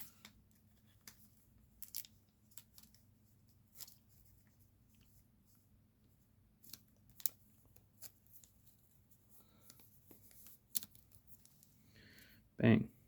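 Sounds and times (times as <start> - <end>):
card stock clicks and rustles: 0.0 - 4.3, 6.6 - 11.8.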